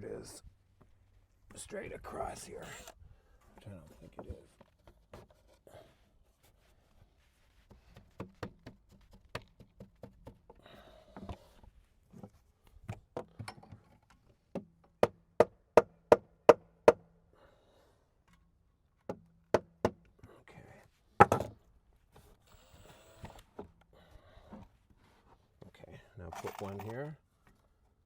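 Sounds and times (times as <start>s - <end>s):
knocks on wooden board: 21.2s - 21.5s.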